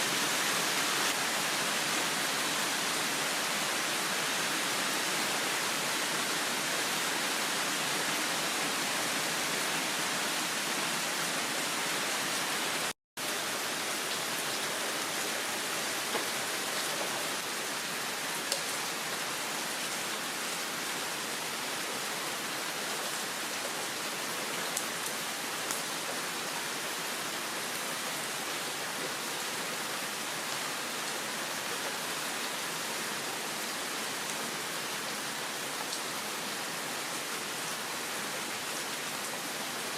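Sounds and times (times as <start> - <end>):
heavy rain hissing: 0.0 - 20.4.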